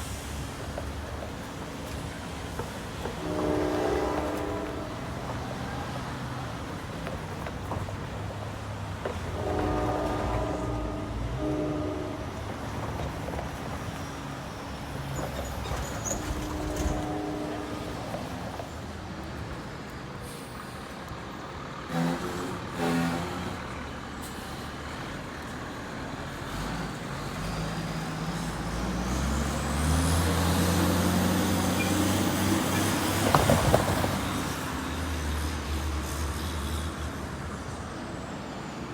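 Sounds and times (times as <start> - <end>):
horn toots: 3.2 - 5.1, 9.3 - 12.4, 16.2 - 18.2, 21.9 - 23.6
heavy vehicle engine pulling away: 19.4 - 35.8
air-brake hiss: 20.2 - 21.3.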